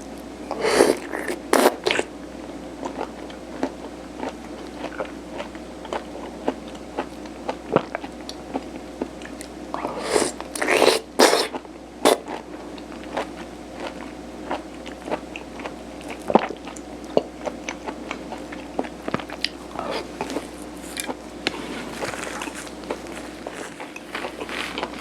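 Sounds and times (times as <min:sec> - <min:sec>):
chewing with wet mouth clicks: 0:10.6 - 0:25.0.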